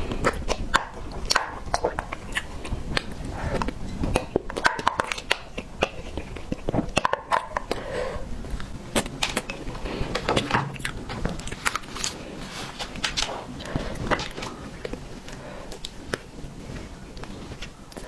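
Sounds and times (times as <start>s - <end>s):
chewing mouth clicks: 0.1s - 7.8s.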